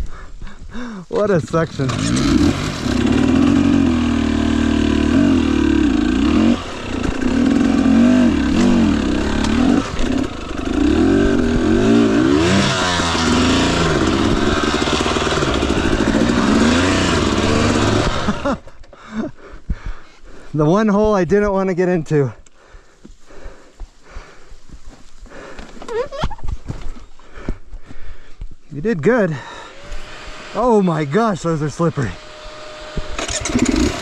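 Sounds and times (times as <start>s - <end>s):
dirt bike engine revving: 1.1s - 18.8s, 29.2s - 34.0s.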